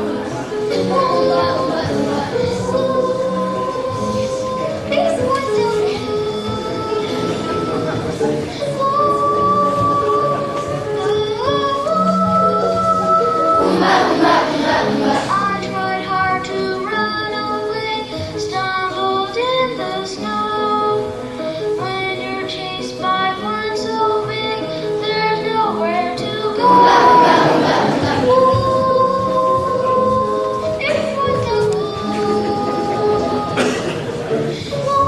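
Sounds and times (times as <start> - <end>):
children singing: 0.0 - 17.0, 26.1 - 35.0
musical accompaniment: 0.0 - 35.0.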